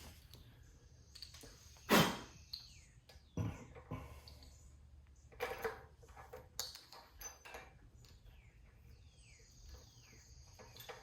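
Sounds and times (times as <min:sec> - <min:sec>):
birds chirping: 0:00.0 - 0:05.5, 0:07.1 - 0:11.0
tools clinking and knocking: 0:05.2 - 0:08.5, 0:09.6 - 0:11.0.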